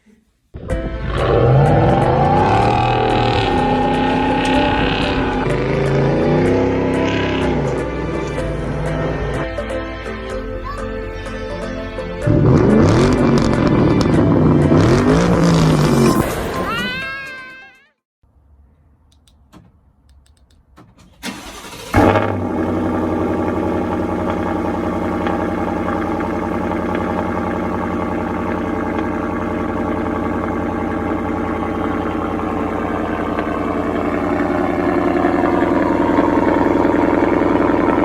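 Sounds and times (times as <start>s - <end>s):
engine cranking and starting: 0.7s - 9.8s, 20.3s - 38.0s
engine idling: 0.7s - 16.0s, 21.2s - 38.0s
faint clicks: 18.7s - 20.9s.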